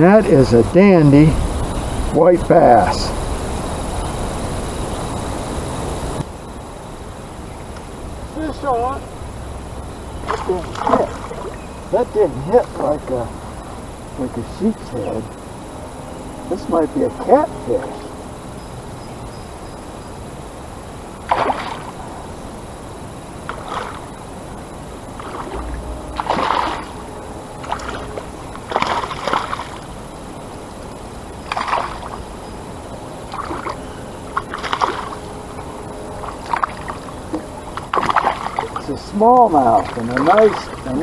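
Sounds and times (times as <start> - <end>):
steady background hiss: 0.0 - 41.0
water sloshing and splashing: 9.8 - 14.0, 21.2 - 22.4, 23.3 - 41.0.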